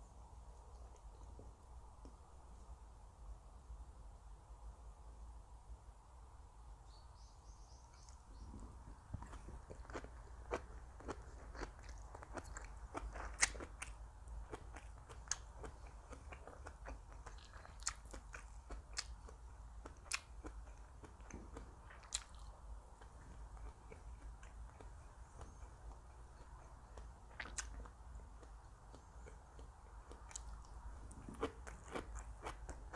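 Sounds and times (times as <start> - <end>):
person chewing crisp food: 8.0 - 32.9.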